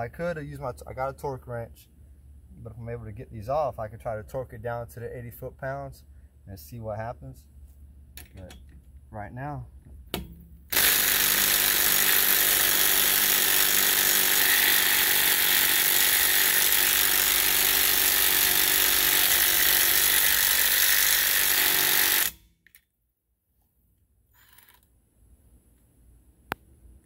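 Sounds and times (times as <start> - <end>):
impact driver hammering: 10.1 - 22.4.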